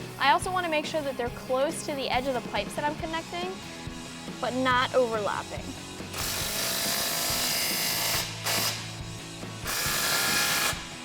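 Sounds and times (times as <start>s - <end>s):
power tool tightening nuts: 6.1s - 9.0s, 9.6s - 11.0s.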